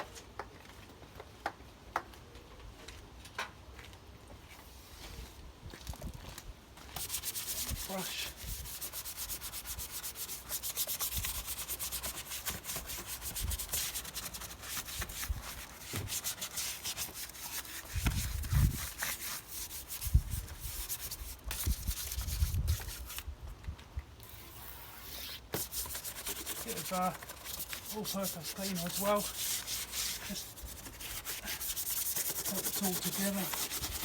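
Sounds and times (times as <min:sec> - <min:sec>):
stiff brush scrubbing: 0:07.0 - 0:23.2, 0:24.3 - 0:34.0.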